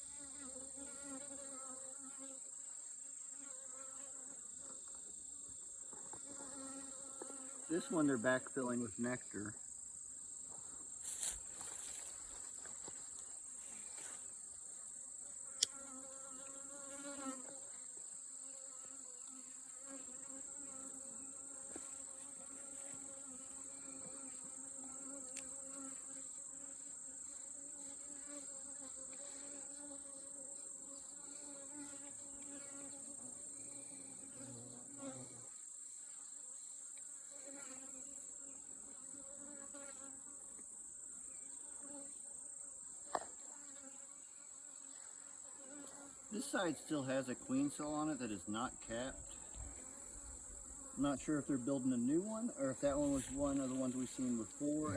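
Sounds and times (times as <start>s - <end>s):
honeybees buzzing: 0.0s - 2.5s, 3.3s - 9.8s, 10.9s - 35.6s, 37.2s - 40.6s, 41.5s - 54.9s.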